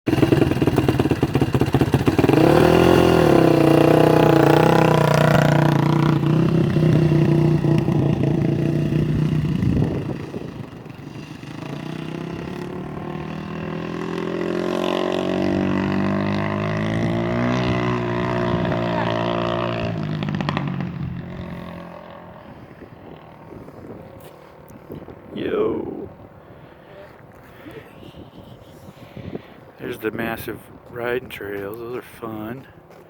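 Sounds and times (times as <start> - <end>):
dirt bike engine revving: 0.1 - 23.4.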